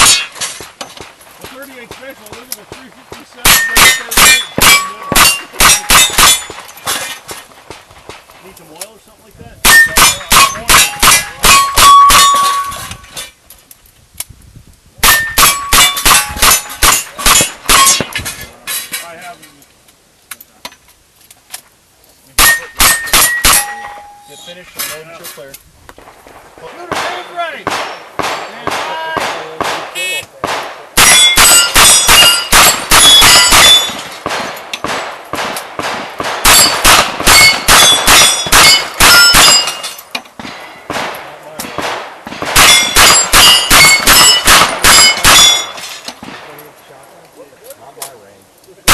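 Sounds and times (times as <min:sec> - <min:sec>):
steel targets ringing: 0:00.0 - 0:00.7, 0:03.4 - 0:07.2, 0:09.6 - 0:13.3, 0:15.0 - 0:18.2, 0:22.4 - 0:24.9, 0:31.0 - 0:34.2, 0:36.4 - 0:40.8, 0:42.6 - 0:46.1.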